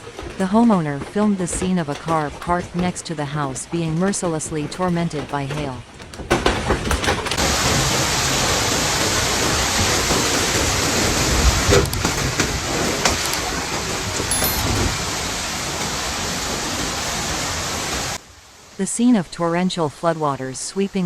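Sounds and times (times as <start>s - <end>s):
heavy hail pelting down: 5.2s - 14.2s.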